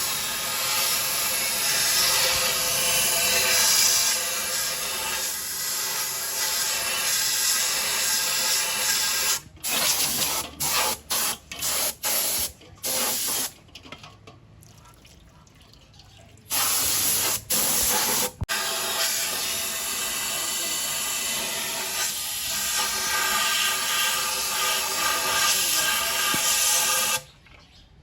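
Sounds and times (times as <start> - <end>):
pressurised spray hissing: 16.5 - 27.2.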